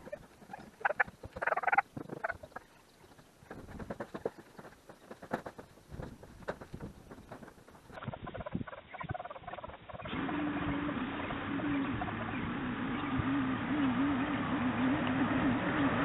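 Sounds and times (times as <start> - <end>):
rustling scraping: 0.0 - 8.0.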